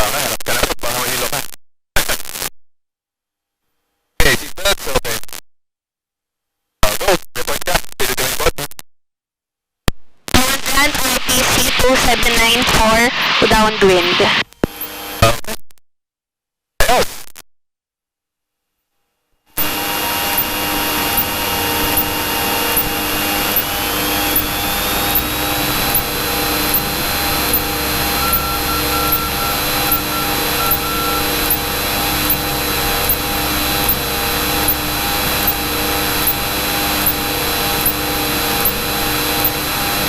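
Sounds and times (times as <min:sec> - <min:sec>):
propeller engine droning: 0:19.6 - 0:40.0.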